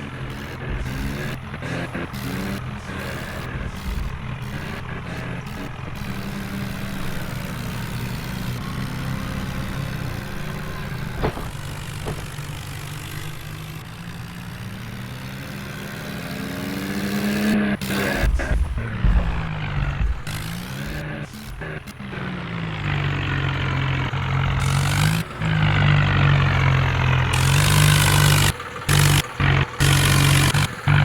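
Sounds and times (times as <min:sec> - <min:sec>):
tractor engine running: 0:00.0 - 0:31.0.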